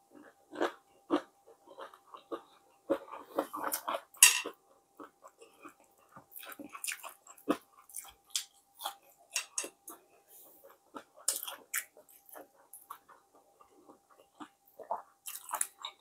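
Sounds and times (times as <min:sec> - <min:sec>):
chewing and wet mouth clicks: 0:11.2 - 0:13.2.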